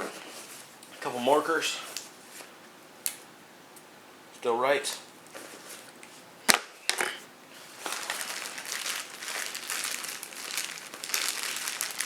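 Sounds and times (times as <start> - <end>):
plastic wrapping crinkling: 7.6 - 12.0.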